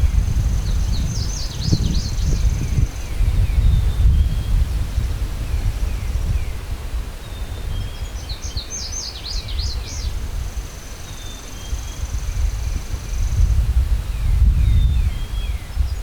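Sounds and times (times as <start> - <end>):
songbird singing high chirps: 0.0 - 16.0
wind buffeting microphone: 0.0 - 16.0
background bird chirps: 0.1 - 13.5.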